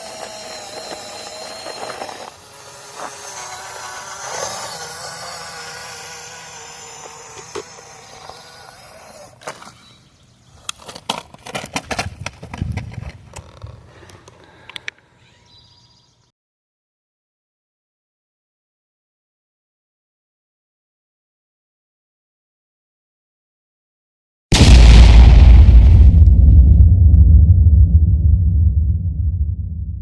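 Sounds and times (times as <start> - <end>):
electric motor and gearbox whirring: 0.0 - 9.8
low thud: 24.5 - 30.0.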